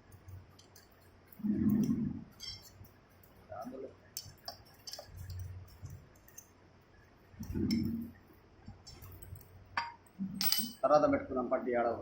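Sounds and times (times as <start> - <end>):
metal parts and tools clinking: 0.0 - 3.4, 8.9 - 10.8.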